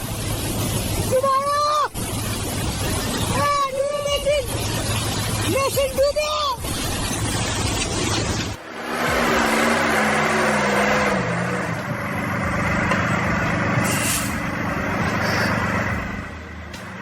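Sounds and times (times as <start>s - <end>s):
steady rushing noise: 0.0s - 17.0s
heavy vehicle engine running: 7.2s - 17.0s.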